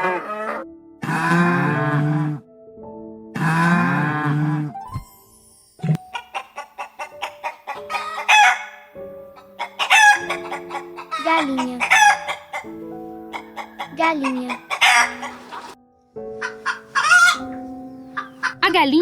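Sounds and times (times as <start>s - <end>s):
light background music: 0.0s - 19.0s
chickens clucking: 6.0s - 15.8s, 16.4s - 18.7s.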